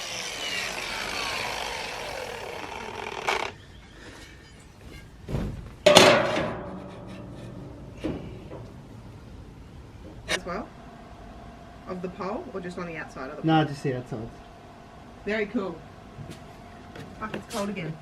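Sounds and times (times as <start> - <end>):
power tool spinning down: 0.0 - 3.6.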